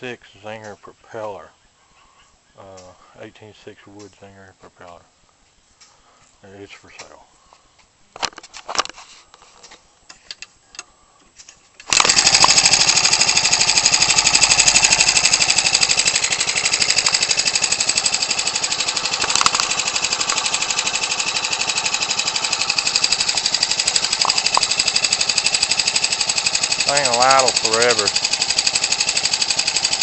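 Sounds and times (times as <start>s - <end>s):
model aircraft engine running: 11.9s - 30.0s.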